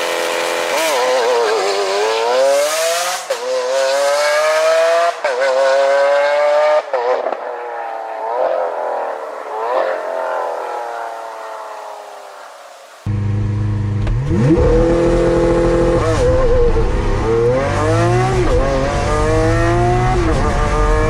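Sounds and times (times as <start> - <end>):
engine revs: 0.0 - 7.6, 13.1 - 21.0
sports car engine accelerating: 13.1 - 21.0.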